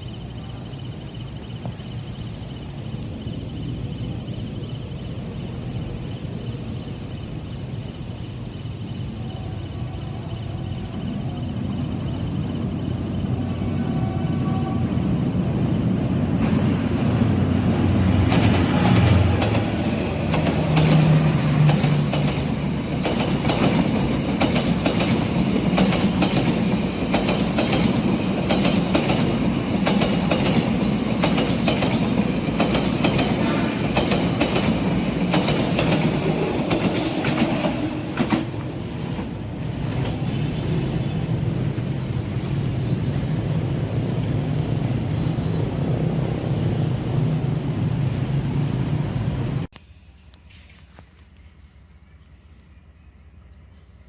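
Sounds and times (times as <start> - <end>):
low locomotive engine drone: 0.0 - 54.0
wheels clacking over rail joints: 18.0 - 40.6.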